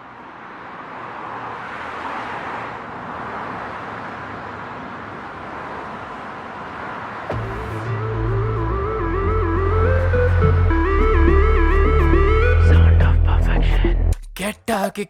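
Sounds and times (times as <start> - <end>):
street traffic rushing noise: 0.0 - 14.2.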